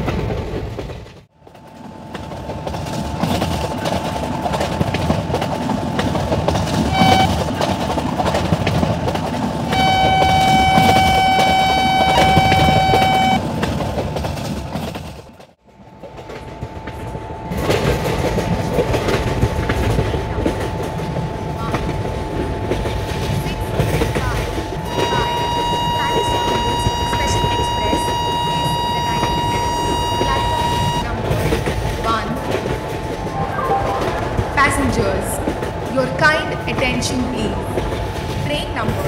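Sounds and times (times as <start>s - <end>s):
train wheels rumbling and clattering: 0.0s - 39.0s
locomotive horn: 6.8s - 8.0s, 9.7s - 13.5s, 24.7s - 31.4s.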